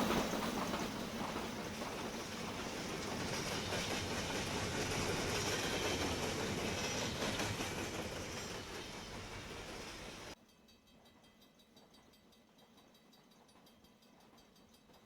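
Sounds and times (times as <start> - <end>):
train wheels rumbling on rails: 0.0 - 10.4.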